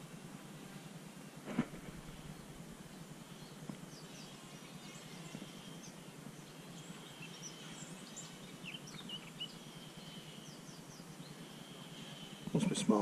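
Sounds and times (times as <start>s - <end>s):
low background rumble: 0.0s - 12.5s
small birds chirping: 1.6s - 13.0s.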